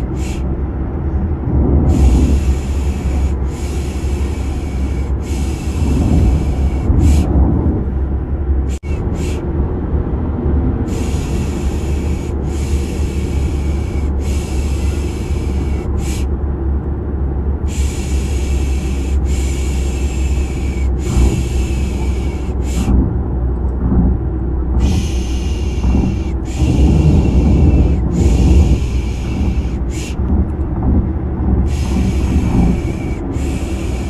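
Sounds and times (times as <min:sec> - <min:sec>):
car driving rumble: 0:00.0 - 0:34.0.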